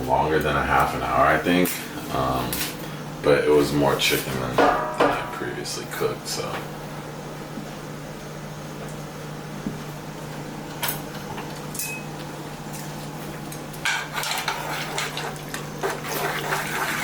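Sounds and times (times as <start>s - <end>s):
steady low hum: 0.0s - 16.4s
utensil knocking on pot: 4.6s - 5.4s
utensil scraping pot bottom: 13.9s - 17.0s.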